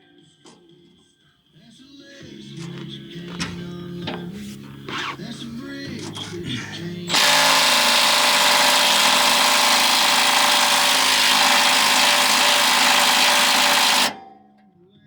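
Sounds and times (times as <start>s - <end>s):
impact wrench running: 7.1s - 14.2s.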